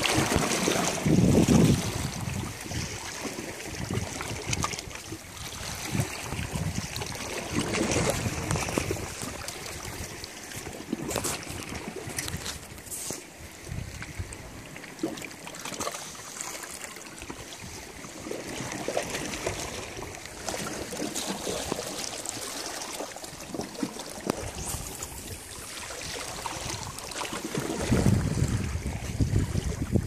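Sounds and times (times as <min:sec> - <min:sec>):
sea water lapping: 0:00.0 - 0:30.0
small clicks and splashes: 0:05.9 - 0:13.2, 0:14.8 - 0:17.5, 0:18.5 - 0:25.2.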